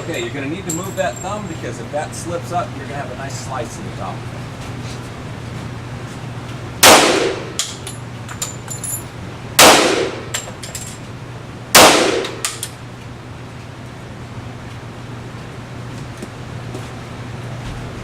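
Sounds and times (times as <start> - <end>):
low ventilation hum: 0.0 - 18.0
pistol shots echoing indoors: 6.8 - 7.6, 9.6 - 10.3, 11.8 - 12.6.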